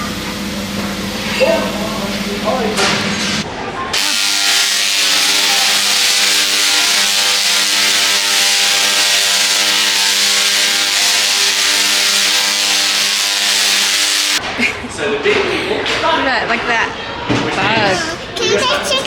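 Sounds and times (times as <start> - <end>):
loud machine noise: 4.0 - 14.5.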